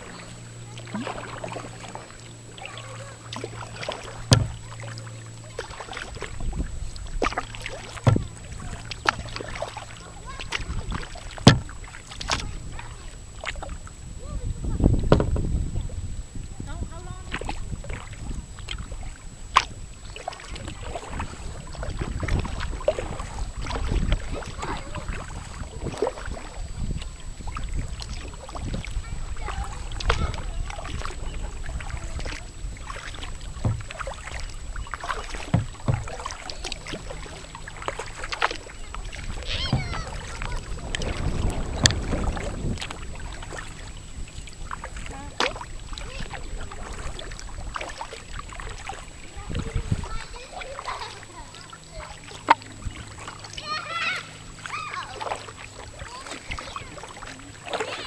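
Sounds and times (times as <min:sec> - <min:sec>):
paddle splashing water: 0:00.0 - 0:58.0
sharp knocks: 0:04.3 - 0:04.6, 0:08.0 - 0:08.3, 0:11.4 - 0:11.8, 0:15.0 - 0:15.5, 0:33.6 - 0:34.1, 0:35.4 - 0:36.3, 0:39.6 - 0:40.3.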